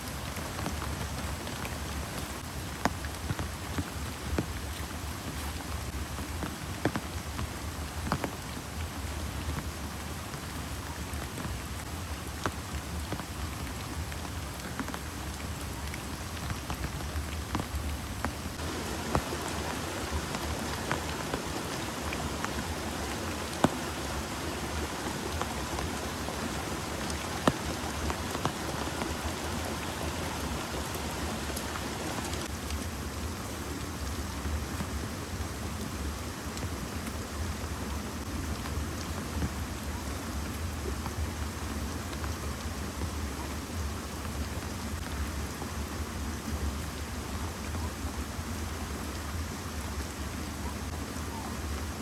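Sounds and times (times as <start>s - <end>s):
raindrops tapping close by: 0.0s - 46.8s
heavy rain falling: 0.0s - 52.0s.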